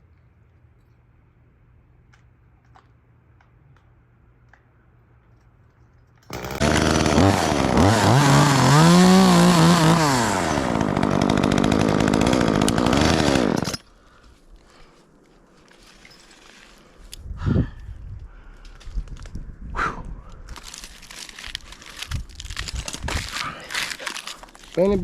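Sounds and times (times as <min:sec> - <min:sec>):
chainsaw starting and revving: 0:06.3 - 0:13.8.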